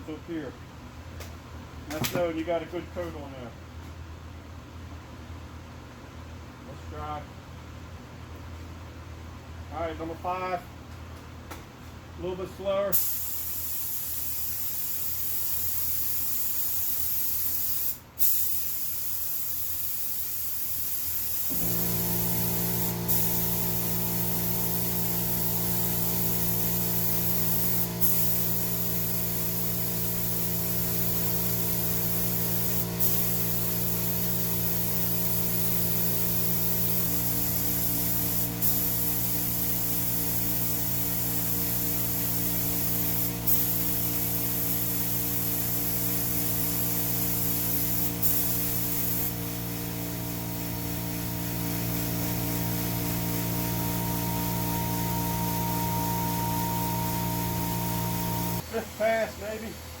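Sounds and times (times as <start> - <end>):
spray gun hissing: 13.0 - 58.6
motor humming: 21.5 - 30.6, 49.0 - 58.6.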